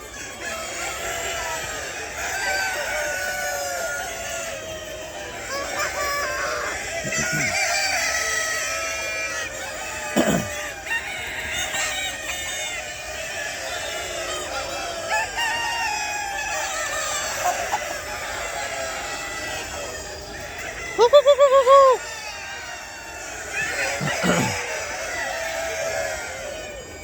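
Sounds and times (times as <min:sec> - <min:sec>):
chickens clucking: 0:00.0 - 0:27.0
rooster crowing: 0:00.0 - 0:27.0
loud falling call: 0:21.0 - 0:22.0.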